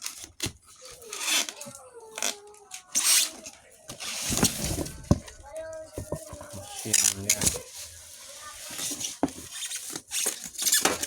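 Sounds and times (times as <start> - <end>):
packaging rustling and knocking: 4.0 - 7.8.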